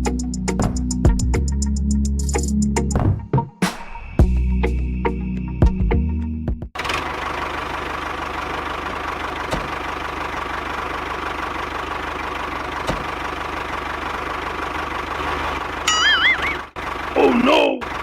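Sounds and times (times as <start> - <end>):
engine idling: 6.8 - 18.0.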